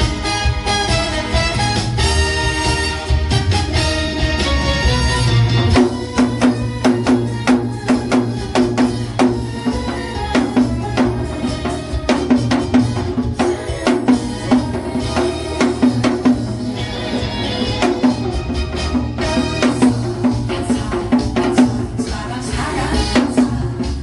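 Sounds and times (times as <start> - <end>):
recorded backing song: 0.0 - 24.0
hourglass drum strokes: 5.6 - 24.0.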